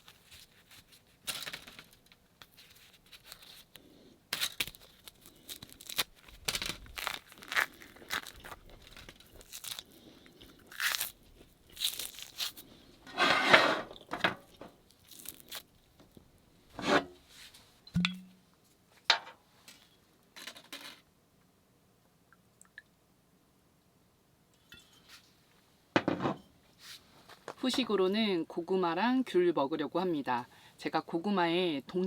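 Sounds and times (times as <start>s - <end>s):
food wrapping crinkling and tearing: 0.0s - 12.9s, 14.5s - 16.2s.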